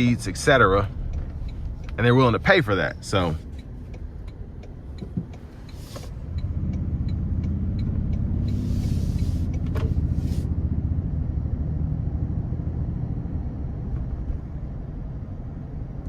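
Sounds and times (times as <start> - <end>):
engine heard from inside cabin: 0.0 - 16.0.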